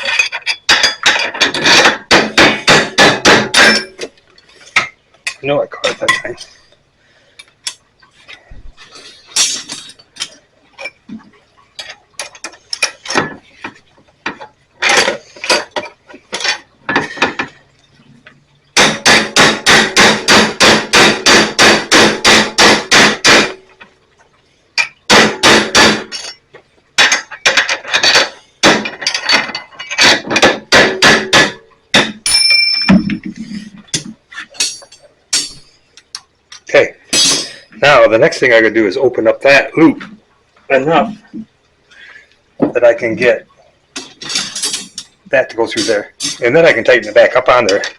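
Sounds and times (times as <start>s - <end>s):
hammer striking steel punch: 18.8s - 23.6s
metallic ring: 32.2s - 33.3s, 34.6s - 35.8s.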